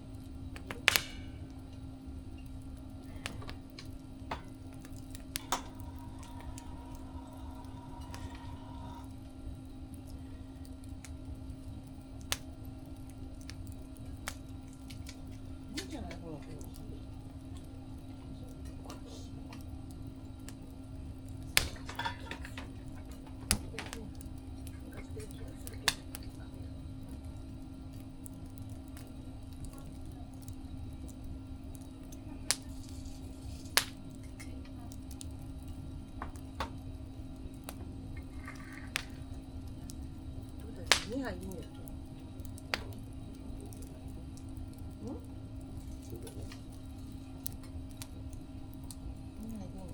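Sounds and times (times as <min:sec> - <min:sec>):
campfire crackling and popping: 0:00.0 - 0:49.9
faint hum: 0:00.0 - 0:49.9
sharp snap of fire: 0:00.2 - 0:16.8, 0:18.4 - 0:26.4, 0:27.0 - 0:49.4
low rumble: 0:03.0 - 0:10.6.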